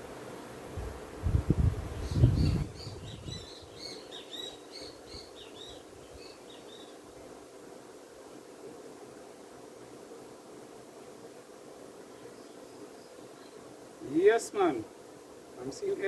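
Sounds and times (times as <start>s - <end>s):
bees buzzing: 0.0s - 16.0s
bird chirping: 2.0s - 7.0s.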